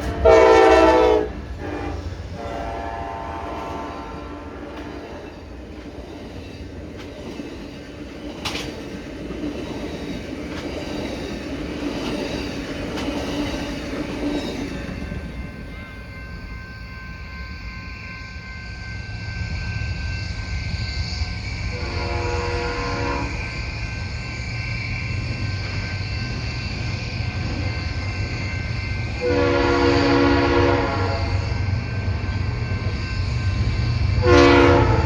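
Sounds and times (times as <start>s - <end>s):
wheels clicking over rail joints: 0.0s - 2.4s, 3.4s - 16.1s
train rolling past: 0.0s - 35.0s.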